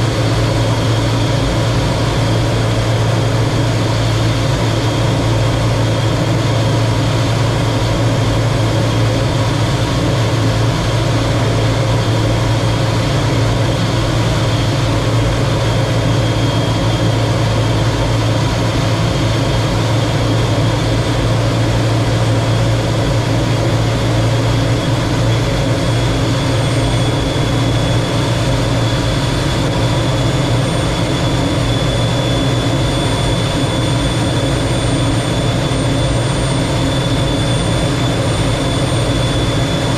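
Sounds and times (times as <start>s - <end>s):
jet engine running: 0.0s - 39.9s.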